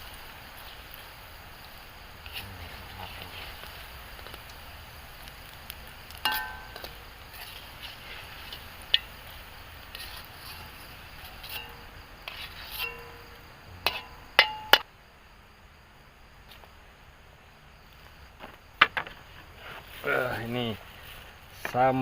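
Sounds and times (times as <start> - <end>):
faint steady hiss: 0.0 - 22.0
utensils clinking against cookware: 6.2 - 6.9, 11.4 - 11.9, 12.6 - 13.2, 13.9 - 14.8.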